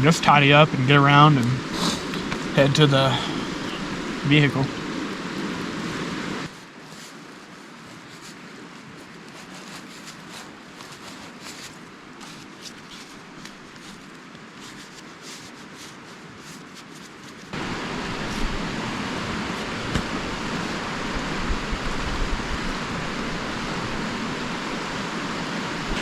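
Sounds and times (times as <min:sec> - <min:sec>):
creek rapids rushing: 0:00.0 - 0:06.9, 0:17.5 - 0:26.0
faint hiss: 0:00.1 - 0:22.0.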